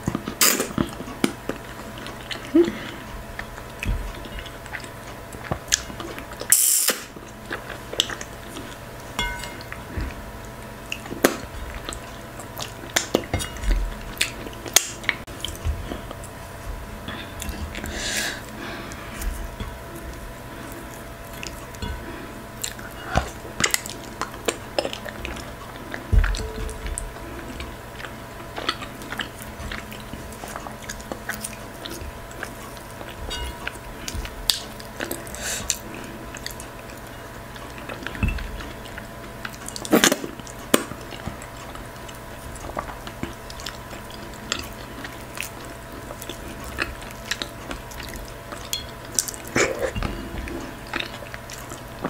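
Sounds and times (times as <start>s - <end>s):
faint hum: 0.0s - 52.0s
wet chewing and mouth smacks: 22.6s - 52.0s.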